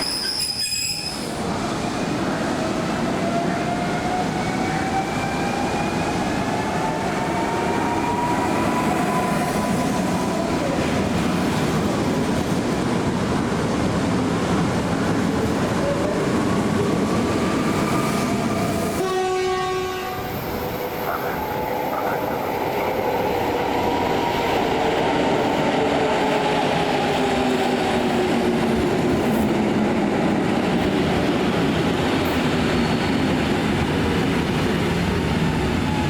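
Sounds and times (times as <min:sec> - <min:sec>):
train horn blast: 0:19.0 - 0:20.8.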